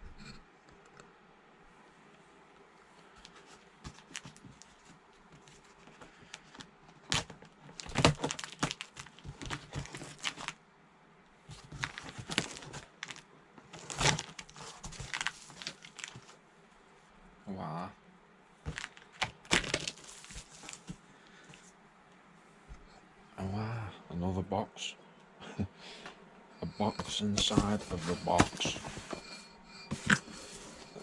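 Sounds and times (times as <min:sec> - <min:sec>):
packaging crinkling and tearing: 0:07.0 - 0:10.6, 0:11.6 - 0:16.4, 0:18.7 - 0:20.9.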